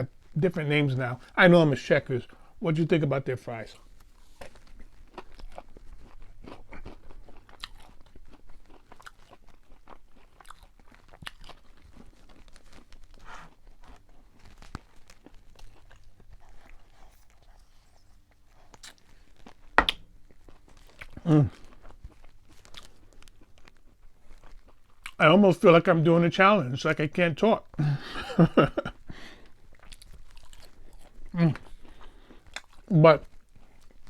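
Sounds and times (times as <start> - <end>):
chewing crisp food: 3.4 - 25.8, 27.5 - 34.0.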